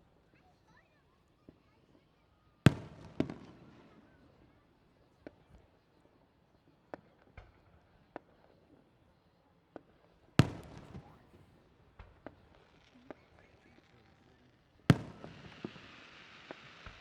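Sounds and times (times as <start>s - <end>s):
faint firework pops: 1.4s - 6.0s, 6.7s - 8.9s, 9.7s - 17.0s
fireworks bangs and booms: 2.7s - 4.6s, 9.7s - 17.0s.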